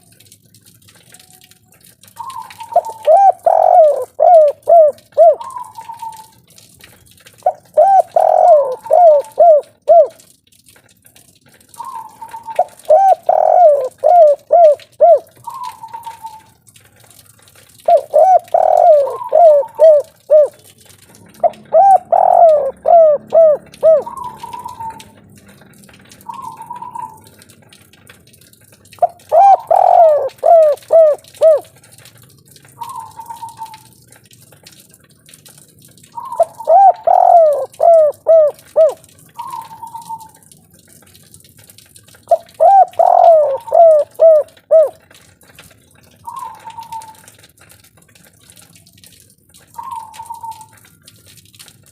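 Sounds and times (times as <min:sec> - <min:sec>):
dove cooing: 0:02.2 - 0:06.3, 0:07.4 - 0:10.2, 0:11.8 - 0:16.5, 0:17.8 - 0:20.7, 0:21.3 - 0:25.2, 0:26.3 - 0:27.3, 0:29.0 - 0:31.7, 0:36.2 - 0:40.4, 0:42.3 - 0:45.0, 0:46.2 - 0:47.3, 0:49.8 - 0:50.8.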